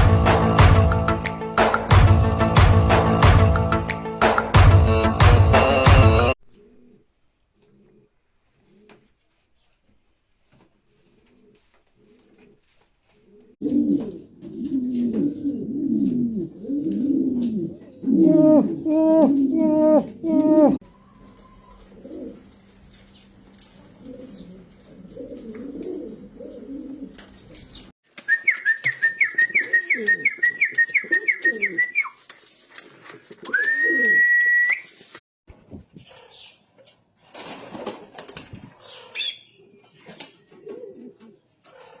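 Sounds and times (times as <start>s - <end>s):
pigeons cooing: 13.2s - 27.9s, 28.9s - 32.0s, 38.8s - 42.0s.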